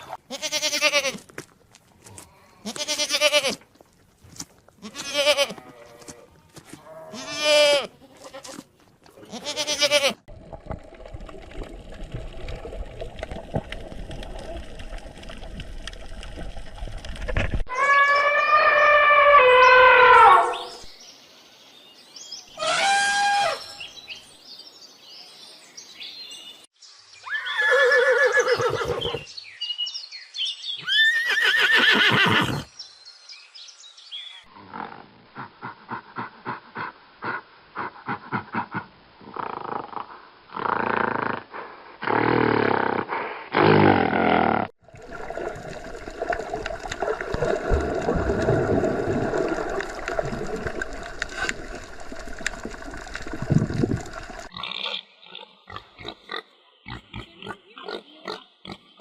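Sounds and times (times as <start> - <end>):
horse whinnying: 27.3 - 29.2, 30.8 - 32.7.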